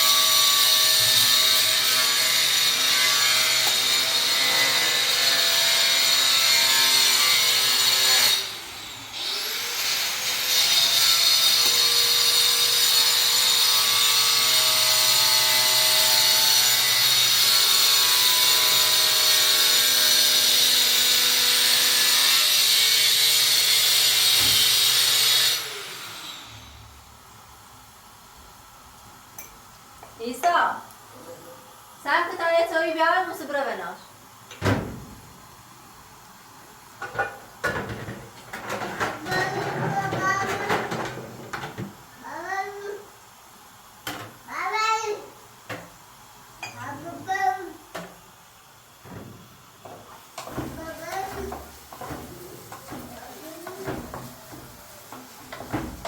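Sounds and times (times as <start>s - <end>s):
electric power cutting tool: 0.0s - 26.8s.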